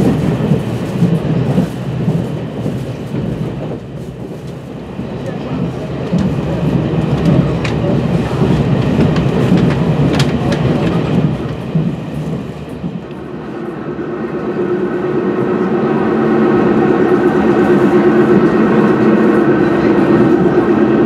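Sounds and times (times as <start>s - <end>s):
train rumble inside carriage: 0.0s - 21.0s
wheels clicking over rail joints: 5.2s - 13.2s.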